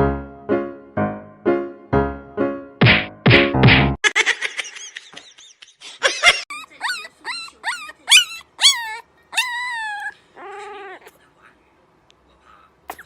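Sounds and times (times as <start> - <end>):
dog whining: 6.5 - 11.2.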